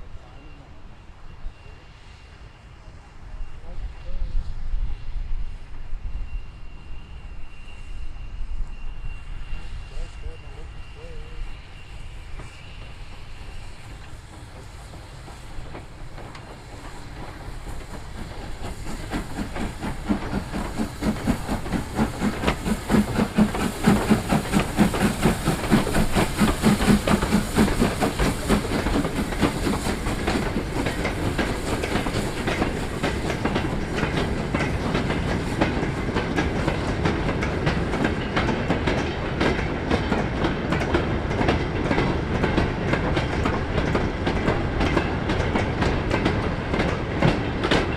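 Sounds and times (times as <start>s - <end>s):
train wheels clattering over rails: 11.8s - 47.9s.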